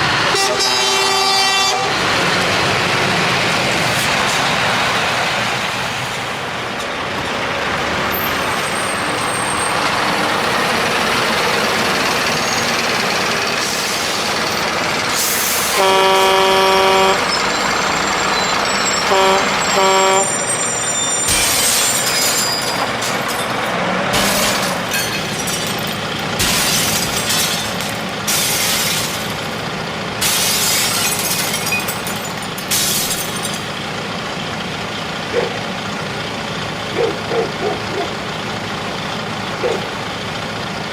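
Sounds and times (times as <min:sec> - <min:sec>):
truck horn blasts: 0:00.0 - 0:02.4, 0:15.2 - 0:22.3
diesel truck running: 0:00.0 - 0:40.9
air brake hissing: 0:12.0 - 0:23.2.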